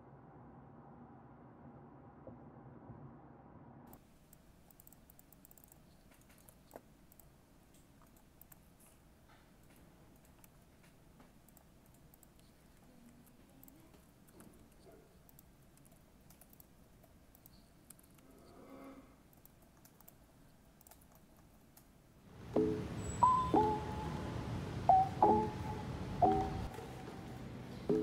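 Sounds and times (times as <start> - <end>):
faint keyboard typing: 3.9 - 18.6, 19.2 - 24.0.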